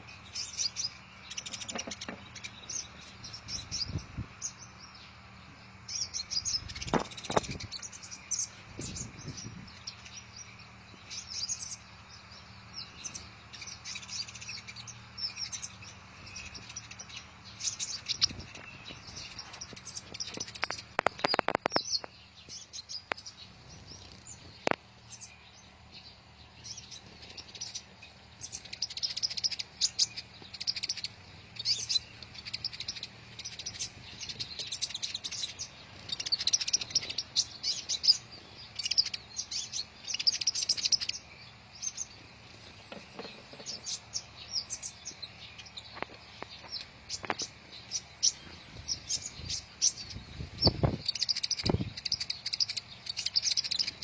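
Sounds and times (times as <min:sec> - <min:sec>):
birds chirping and twittering: 0:00.0 - 0:54.0
sharp clicks: 0:20.3 - 0:22.2.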